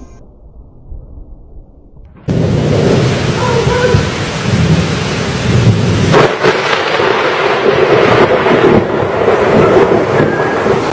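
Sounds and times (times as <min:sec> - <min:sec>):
low thunder rumble: 0:00.0 - 0:10.9
sharp thunder crack: 0:02.1 - 0:10.9
heavy rain hissing: 0:02.3 - 0:10.9.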